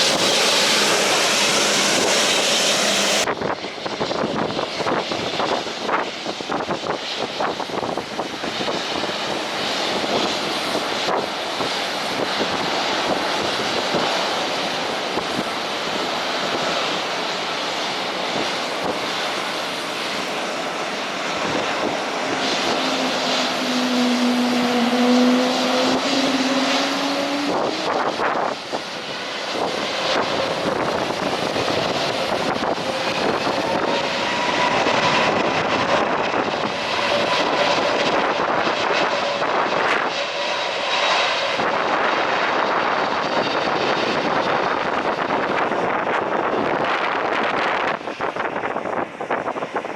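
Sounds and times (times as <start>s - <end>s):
airliner engines running: 0.0s - 49.9s
wind on microphone: 0.0s - 49.9s.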